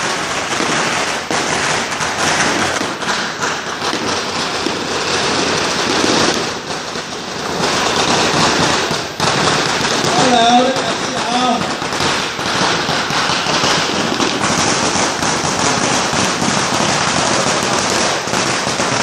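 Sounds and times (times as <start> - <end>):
firecrackers crackling: 0.0 - 19.0.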